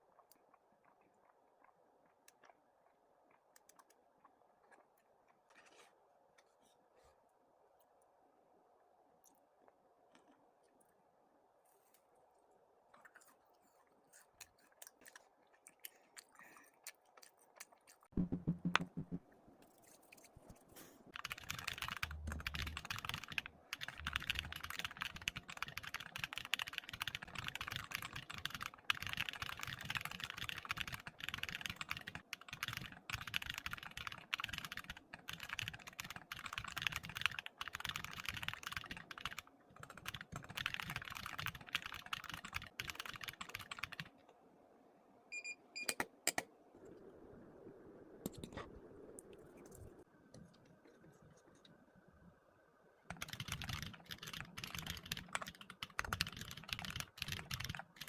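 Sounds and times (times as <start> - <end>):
loud knock: 18.2 - 19.2
typing on computer keyboard: 21.1 - 44.1, 53.1 - 58.0.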